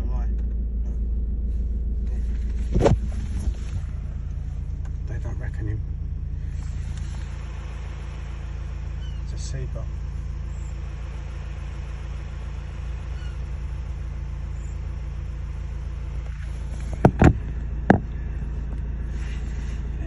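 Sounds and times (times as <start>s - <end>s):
vehicle engine idling: 0.0s - 20.0s
sharp knocks: 16.9s - 18.2s.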